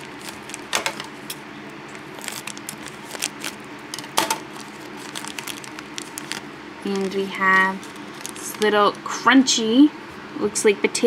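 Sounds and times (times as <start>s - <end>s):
bag crinkling: 0.0s - 8.8s.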